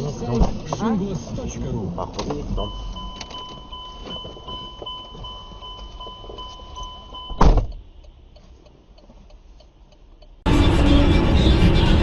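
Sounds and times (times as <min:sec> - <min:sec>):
car noise: 0:00.0 - 0:12.0
electronic beep tone: 0:02.6 - 0:07.4.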